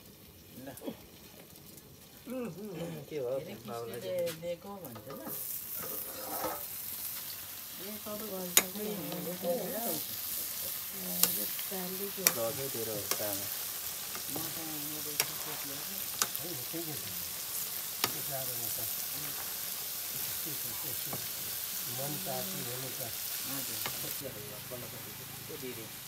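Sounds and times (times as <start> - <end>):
curry sizzling in a wok: 0.0 - 26.0
metal spatula clicking on pan: 8.5 - 8.8, 11.2 - 11.5, 12.2 - 13.4, 16.1 - 16.4.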